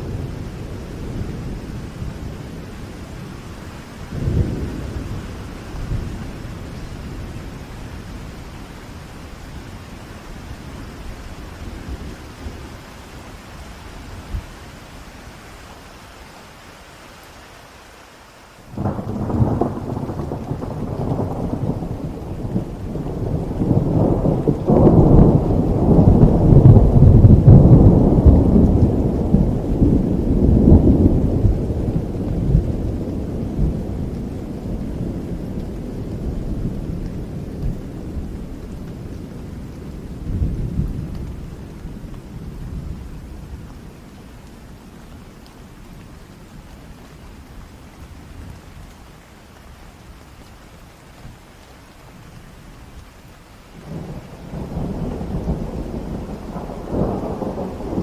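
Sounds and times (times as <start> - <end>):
thunder rumbling: 0.0 - 9.8, 18.7 - 44.2, 53.8 - 58.0
steady rain: 0.0 - 58.0.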